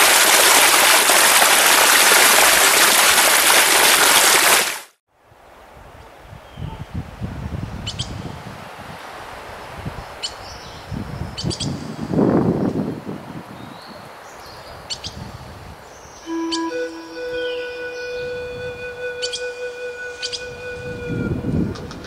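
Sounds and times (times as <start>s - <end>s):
low wind noise: 5.2s - 22.0s.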